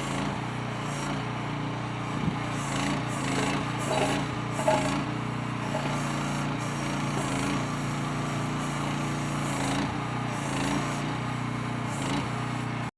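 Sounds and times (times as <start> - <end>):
small excavator engine clattering: 1.6 - 8.2.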